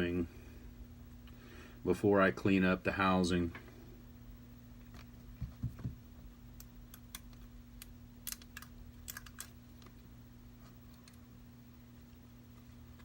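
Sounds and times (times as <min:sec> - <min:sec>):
low electrical hum: 0:00.0 - 0:13.0
small tools clicking and tapping: 0:06.6 - 0:09.9.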